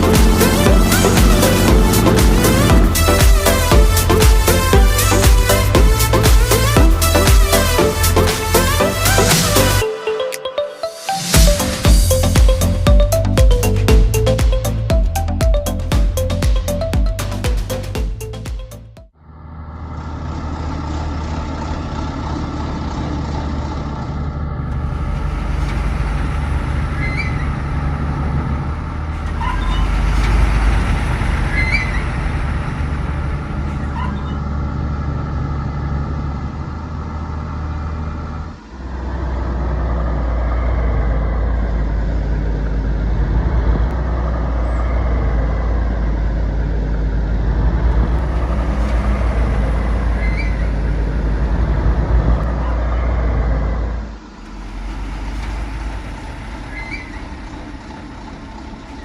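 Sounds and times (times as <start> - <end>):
model truck engine running: 0.0 - 9.8, 19.3 - 59.0
faint high squeaks: 29.2 - 30.8, 33.8 - 34.6, 48.8 - 51.0, 54.8 - 57.7.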